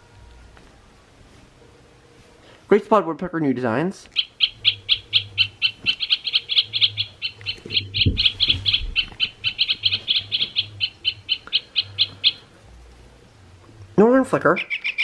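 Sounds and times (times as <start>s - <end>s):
woodpecker calls: 4.1s - 12.6s, 14.5s - 15.0s.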